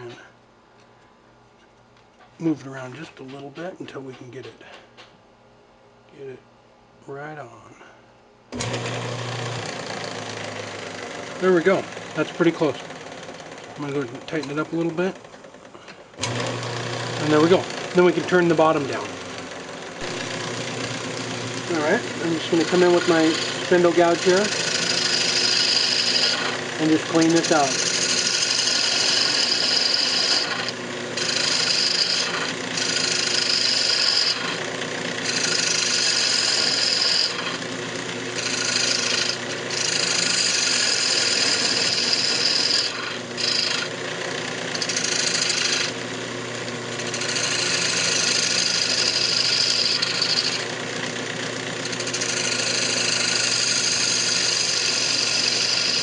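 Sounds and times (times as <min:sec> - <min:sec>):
gouge cutting wood on lathe: 0:08.5 - 0:15.6, 0:16.2 - 0:56.0
lathe humming: 0:08.5 - 0:56.0.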